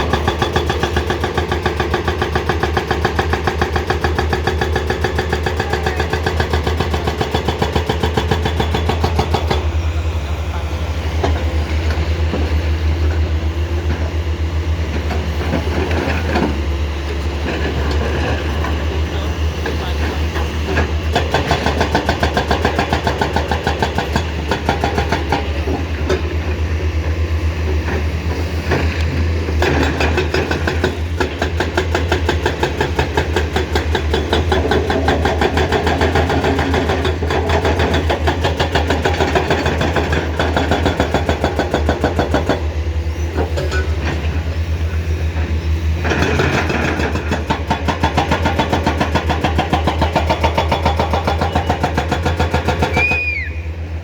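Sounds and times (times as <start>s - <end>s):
excavator diesel engine working: 0.0s - 54.0s.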